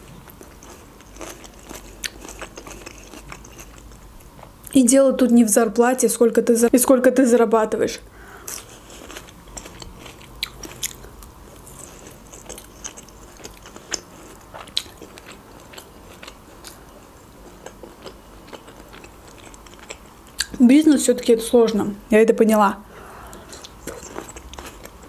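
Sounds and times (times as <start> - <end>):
chewing food: 0.0 - 4.8, 8.4 - 20.6, 23.3 - 25.0.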